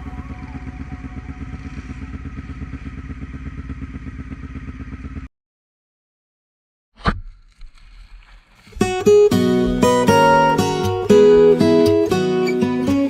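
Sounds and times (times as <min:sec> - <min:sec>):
quad bike engine running: 0:00.0 - 0:05.3, 0:09.2 - 0:13.0.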